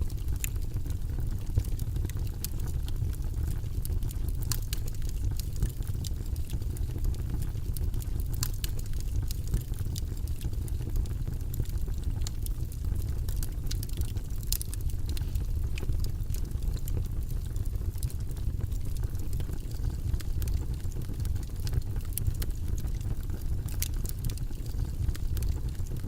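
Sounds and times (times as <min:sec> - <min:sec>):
deep steady noise: 0:00.0 - 0:02.1
light irregular clicks: 0:07.8 - 0:10.8, 0:13.3 - 0:17.1.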